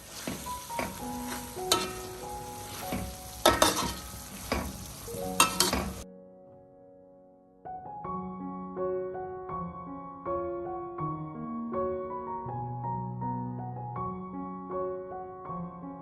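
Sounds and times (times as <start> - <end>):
food sizzling in a pan: 0.0 - 6.0
utensil scraping a pan: 0.0 - 6.0
soft background music: 0.1 - 6.5.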